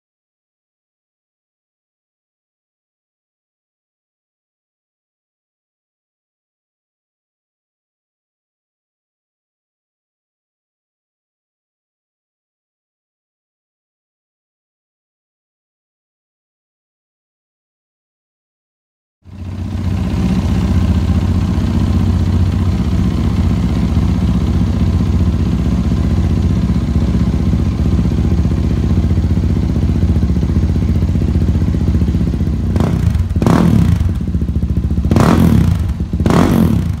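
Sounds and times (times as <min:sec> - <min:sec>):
motorcycle engine starting and idling: 0:19.3 - 0:37.0
engine revving: 0:19.4 - 0:37.0.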